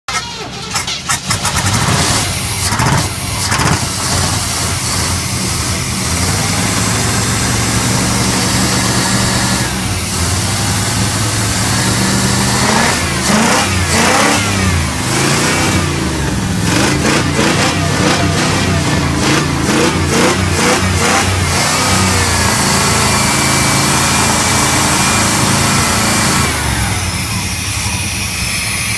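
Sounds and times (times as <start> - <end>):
truck engine idling and revving: 0.0 - 28.9.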